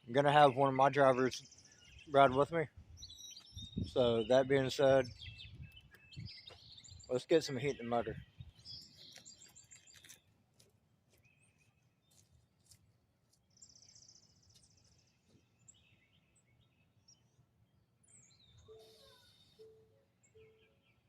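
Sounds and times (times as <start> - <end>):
faint bird chirps: 2.9 - 10.2, 18.0 - 21.0
short high bird trill: 18.6 - 20.6.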